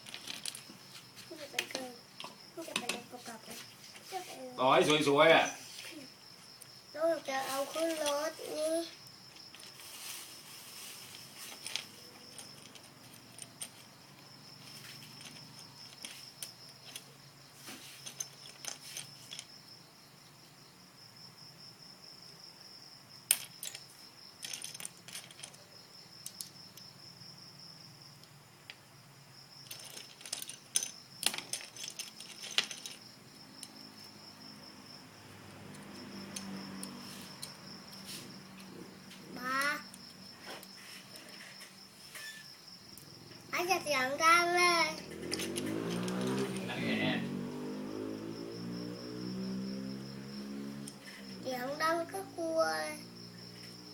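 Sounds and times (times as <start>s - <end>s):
plastic bricks clicking and rattling: 0.0s - 0.7s, 23.3s - 26.6s, 29.7s - 33.0s.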